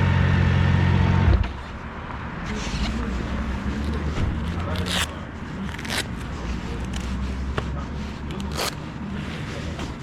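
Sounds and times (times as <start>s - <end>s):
handling clicks and scrapes: 2.4s - 10.0s.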